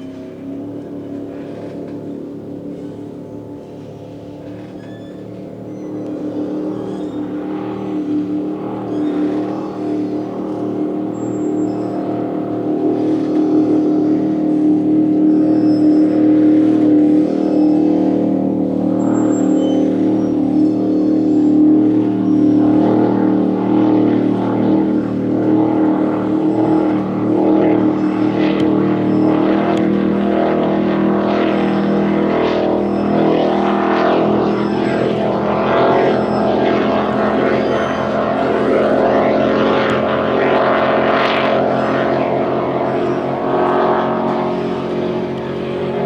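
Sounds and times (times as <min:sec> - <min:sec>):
powerboat engines droning: 0:00.0 - 0:46.0.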